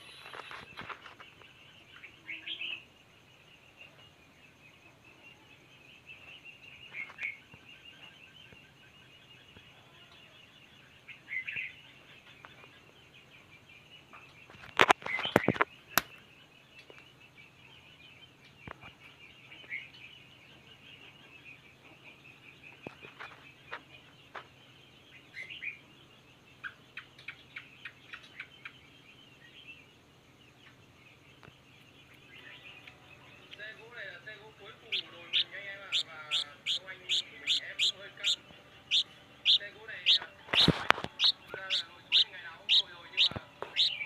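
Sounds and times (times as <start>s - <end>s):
nestlings cheeping: 0.0s - 1.5s, 33.5s - 44.0s.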